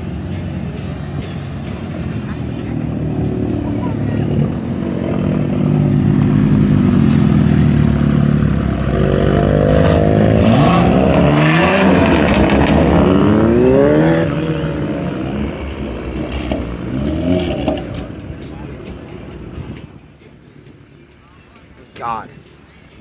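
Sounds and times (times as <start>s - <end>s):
vehicle revving up: 0.0s - 20.0s
engines running loudly: 0.0s - 23.0s.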